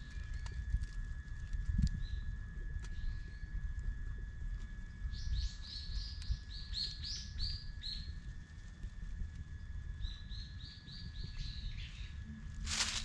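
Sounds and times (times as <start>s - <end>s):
low rumble: 8.1s - 13.0s.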